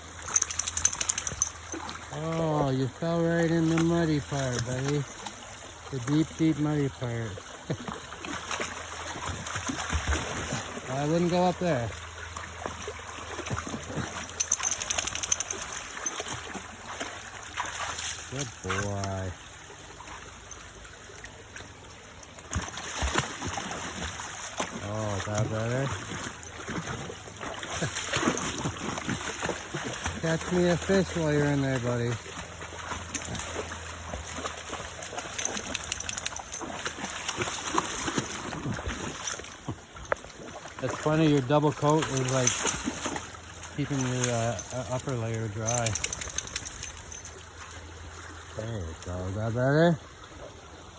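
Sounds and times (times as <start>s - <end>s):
dog splashing through water: 0.0s - 19.3s, 22.4s - 48.4s
creek trickling: 0.0s - 50.9s
stream running: 0.0s - 50.9s.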